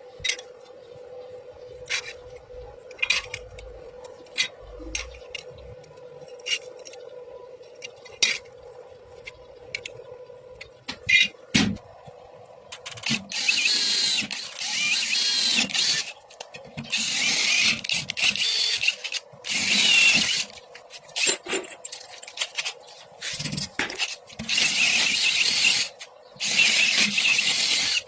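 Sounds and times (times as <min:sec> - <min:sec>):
power tool on metal: 0:13.0 - 0:16.1, 0:16.9 - 0:20.5, 0:23.9 - 0:28.0.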